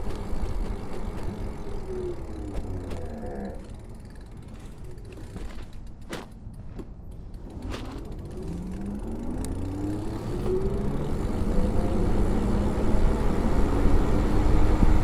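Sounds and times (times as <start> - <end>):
electric bike motor whine: 0.0 - 5.6, 8.1 - 15.0
mechanical clicking and creaking: 0.0 - 10.8.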